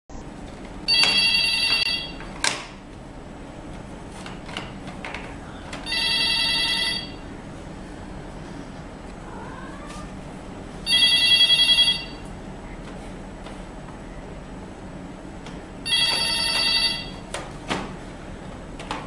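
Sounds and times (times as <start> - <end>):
telephone ringing electronically: 0.8 - 2.3, 5.8 - 7.3, 10.8 - 12.3, 15.8 - 17.3.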